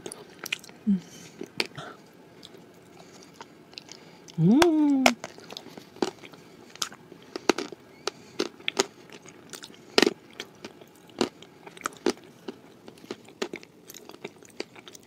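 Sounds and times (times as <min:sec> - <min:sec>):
chewing hard cookie crunches: 0:05.1 - 0:15.0.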